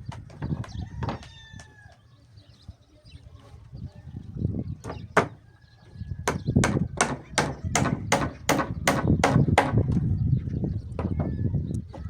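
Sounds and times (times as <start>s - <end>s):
sharp knocking blows: 4.8s - 5.4s, 6.2s - 9.9s.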